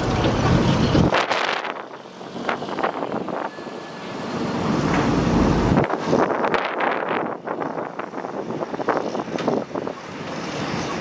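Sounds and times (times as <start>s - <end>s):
heavy machinery engine: 0.0s - 11.0s
wind on microphone: 4.9s - 11.0s.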